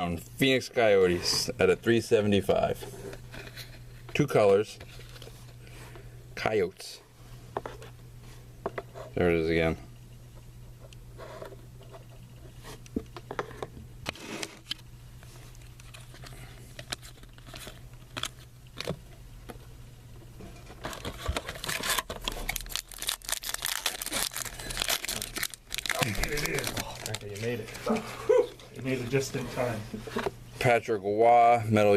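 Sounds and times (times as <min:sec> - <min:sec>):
card pack wrapper crinkling: 0:15.6 - 0:18.5, 0:20.8 - 0:27.9
cards rustling and flicking: 0:20.8 - 0:27.9.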